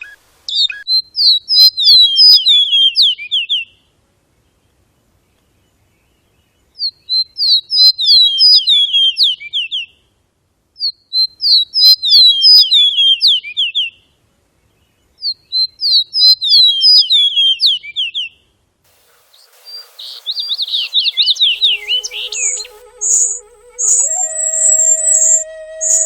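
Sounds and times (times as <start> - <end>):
background hiss: 0.0 - 0.6, 18.9 - 26.0
songbird singing: 18.9 - 26.0
low wavering tone: 19.4 - 26.0.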